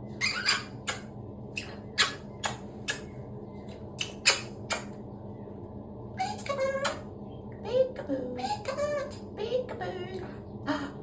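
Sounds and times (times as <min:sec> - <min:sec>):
cockatoo squeaks: 0:00.2 - 0:03.1, 0:04.0 - 0:04.9.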